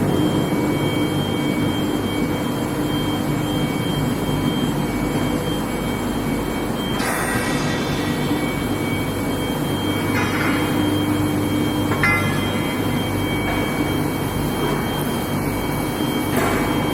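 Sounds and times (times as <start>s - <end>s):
high-pitched machine whine: 0.0s - 16.9s
industrial drone: 0.0s - 16.9s.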